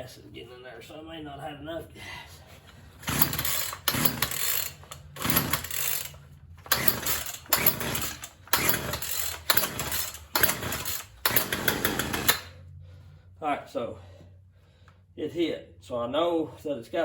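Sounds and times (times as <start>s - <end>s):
chainsaw recoil starter pulls: 3.0s - 12.6s.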